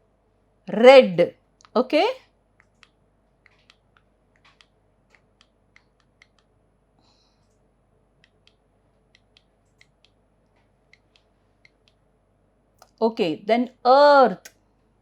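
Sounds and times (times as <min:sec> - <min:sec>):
computer mouse clicking: 0:02.6 - 0:06.6, 0:08.2 - 0:12.0.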